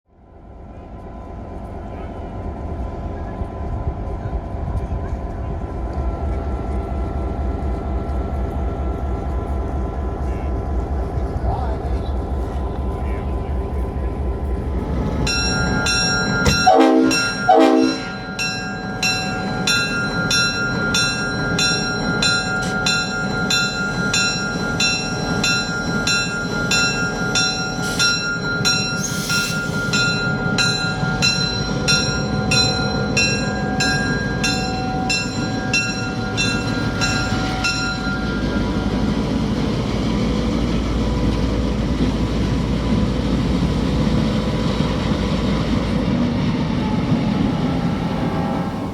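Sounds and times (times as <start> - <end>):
diesel locomotive rumble: 0.2 - 48.9
bell clanging: 15.3 - 39.0
locomotive air horn blasts: 16.6 - 18.2.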